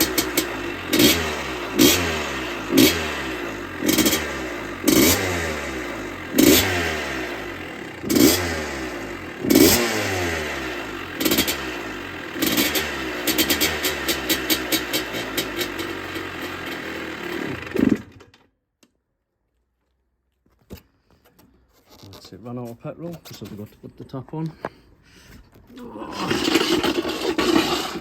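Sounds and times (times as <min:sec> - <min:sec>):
dirt bike engine revving: 0:00.0 - 0:18.2, 0:25.8 - 0:28.0.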